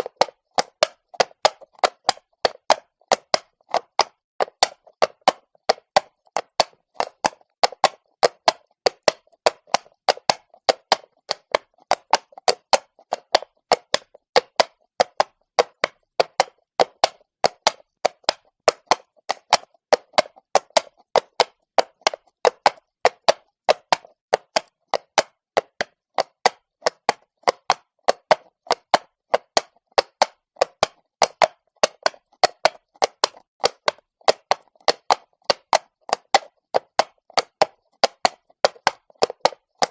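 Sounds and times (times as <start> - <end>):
horse hooves on stone: 0.0 - 39.9.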